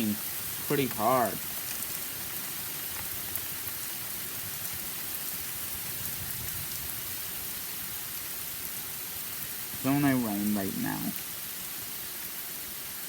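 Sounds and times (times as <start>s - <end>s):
raindrop ticks: 0.0s - 5.4s
heavy rain hissing: 0.0s - 13.0s.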